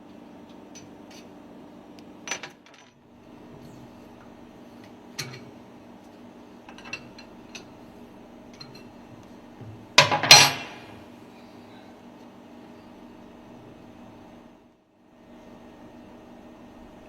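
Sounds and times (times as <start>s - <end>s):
steady hum: 3.0s - 17.0s
metallic clatter of knocks: 6.7s - 7.7s, 9.6s - 11.0s.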